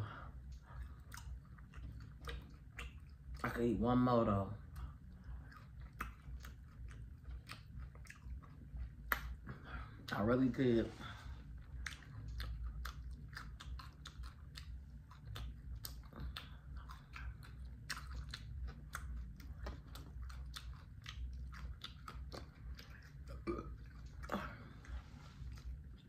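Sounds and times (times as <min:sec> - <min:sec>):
wet mouth clicks: 0:00.4 - 0:03.6, 0:04.6 - 0:09.6, 0:11.6 - 0:24.7
crisp chewing crunches: 0:11.4 - 0:26.0.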